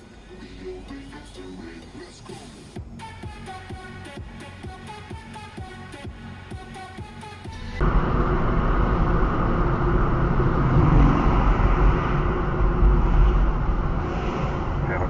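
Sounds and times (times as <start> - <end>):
music: 0.0 - 7.8
vehicle road and engine noise: 0.0 - 15.0.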